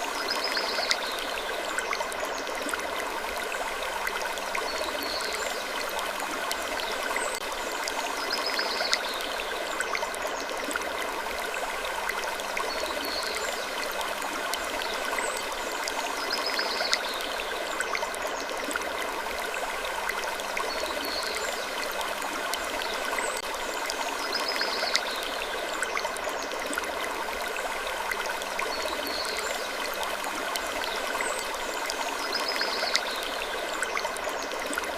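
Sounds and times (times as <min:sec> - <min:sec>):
running water rushing: 0:00.0 - 0:21.0.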